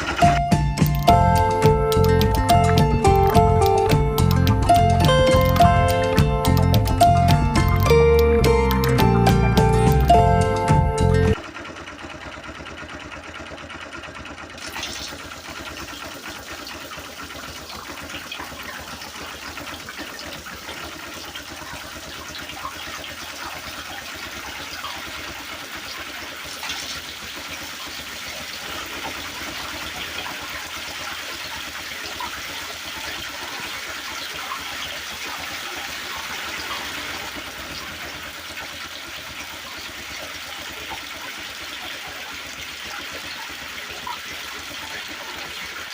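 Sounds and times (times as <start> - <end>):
water trickling and splashing: 14.5 - 45.9.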